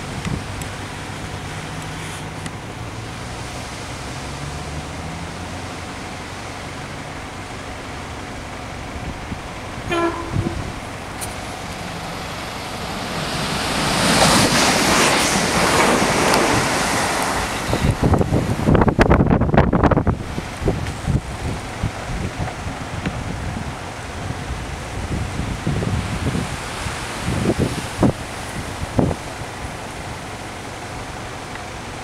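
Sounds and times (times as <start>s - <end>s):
train wheels rushing on rail: 7.4s - 32.0s
train horn toot: 9.9s - 10.8s.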